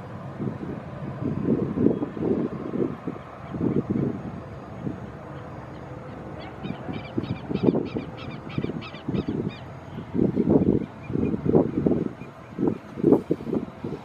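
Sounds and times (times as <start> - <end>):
bird harsh calls: 5.3 - 9.7.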